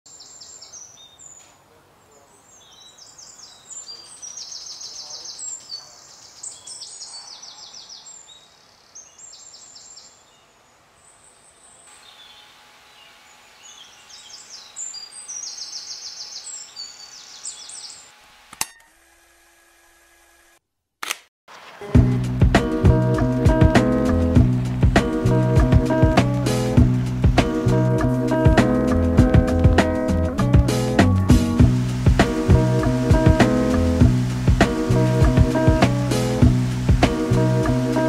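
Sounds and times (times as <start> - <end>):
songbirds chirping and trilling: 0.1 - 18.2, 22.6 - 38.0
background hiss: 0.1 - 18.6, 21.5 - 38.0
sharp click: 18.5 - 18.9, 21.0 - 21.3.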